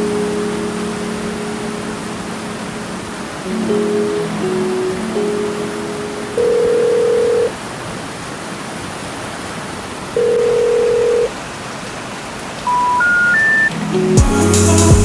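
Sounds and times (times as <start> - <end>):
telephone ringback tone: 5.2 - 7.5, 10.2 - 11.3, 12.7 - 13.7
rain hissing: 11.4 - 15.0.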